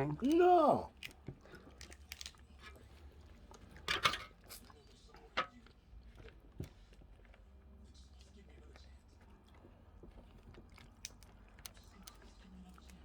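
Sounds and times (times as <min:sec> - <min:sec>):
clicks and clatters of dishes: 0:03.8 - 0:04.6, 0:05.2 - 0:05.7.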